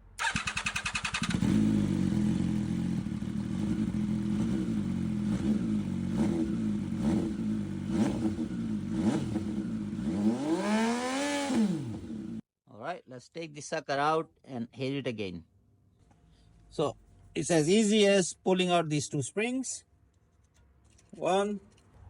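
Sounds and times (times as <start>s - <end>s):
motorcycle engine idling and revving: 0.1s - 12.4s
motorcycle starter cranking: 0.2s - 1.6s.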